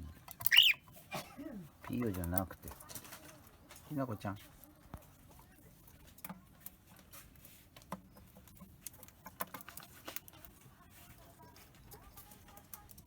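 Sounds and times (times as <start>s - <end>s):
bird beak clicking on seeds: 0.2s - 0.9s.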